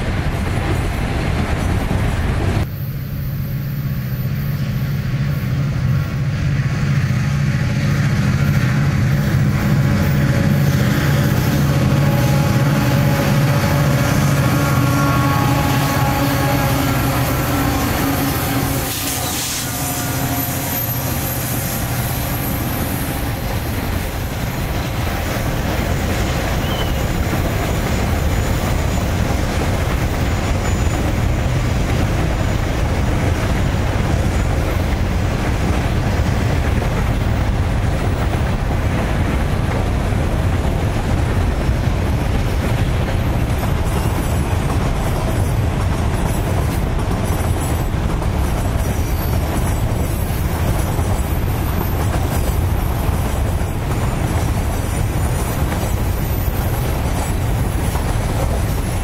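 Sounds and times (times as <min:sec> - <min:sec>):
diesel locomotive engines droning: 0:00.0 - 0:59.0
train rumbling on track: 0:00.0 - 0:59.0.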